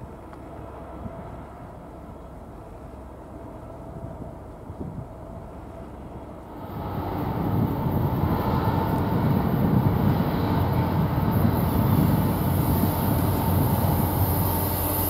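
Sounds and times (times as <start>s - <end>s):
freight train rolling past: 5.3s - 15.0s.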